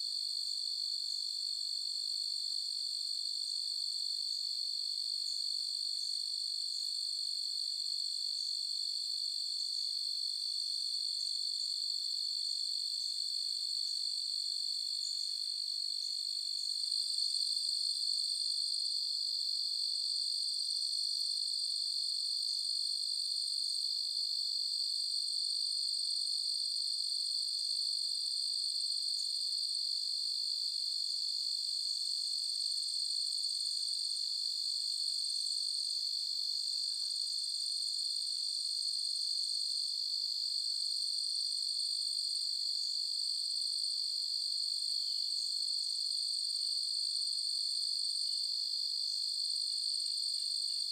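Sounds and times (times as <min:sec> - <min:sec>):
crickets chirping: 0:14.8 - 0:17.5.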